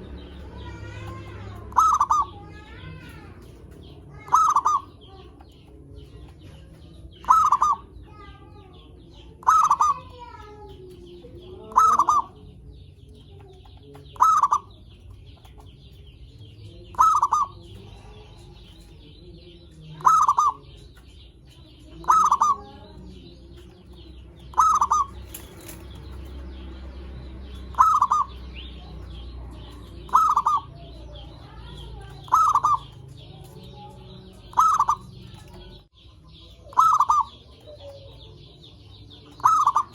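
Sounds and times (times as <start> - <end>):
small birds chirping: 0.0 - 39.9
dove cooing: 0.7 - 5.3, 7.2 - 7.9, 9.4 - 10.2, 11.0 - 12.5, 14.1 - 14.8, 16.9 - 18.3, 19.9 - 20.8, 21.8 - 23.2, 24.5 - 26.0, 27.7 - 31.3, 32.2 - 33.6, 34.3 - 35.8, 36.7 - 39.9.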